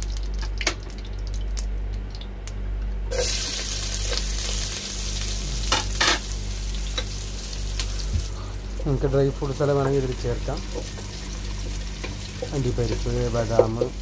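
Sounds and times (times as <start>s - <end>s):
onions sizzling in hot fat: 3.1s - 14.0s.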